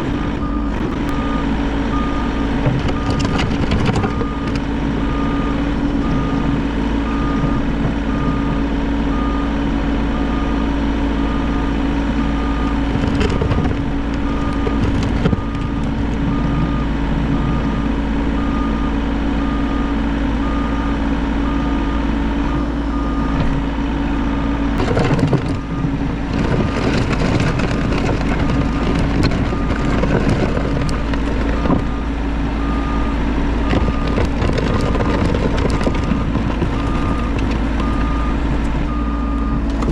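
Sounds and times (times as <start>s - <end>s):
excavator diesel engine running: 0.0s - 39.9s
knocks and scrapes: 2.6s - 4.8s, 12.8s - 16.3s, 24.8s - 32.0s, 33.6s - 38.1s.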